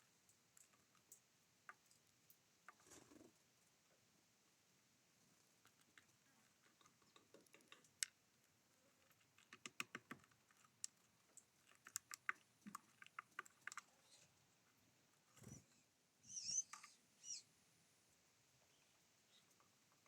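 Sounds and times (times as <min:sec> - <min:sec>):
birds pecking seeds: 0:00.0 - 0:03.8, 0:05.2 - 0:17.4.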